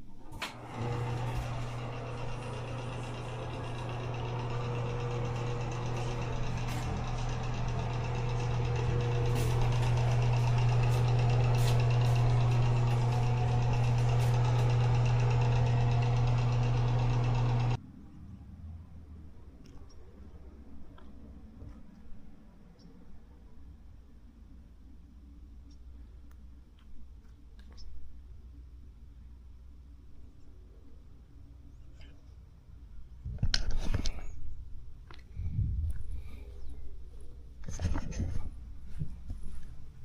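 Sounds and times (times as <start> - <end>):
low mechanical drone: 0.0 - 21.5, 33.9 - 40.0.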